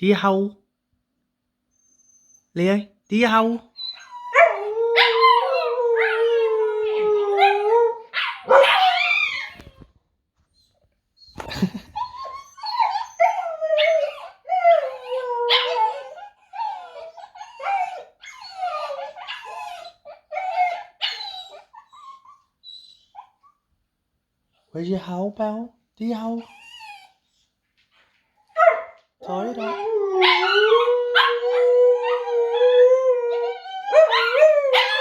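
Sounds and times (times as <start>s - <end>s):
dog howling: 4.0s - 9.7s, 12.4s - 21.2s, 28.6s - 35.0s.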